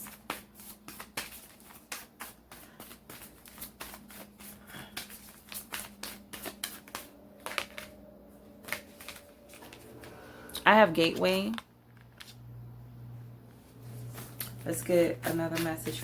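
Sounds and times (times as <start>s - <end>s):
cards shuffled by hand: 0.0s - 10.2s, 11.5s - 12.4s.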